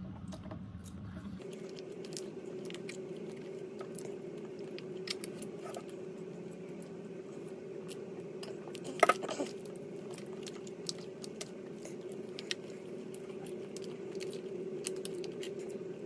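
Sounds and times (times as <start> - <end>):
low hum: 0.0 - 16.0
person chewing: 1.4 - 16.0.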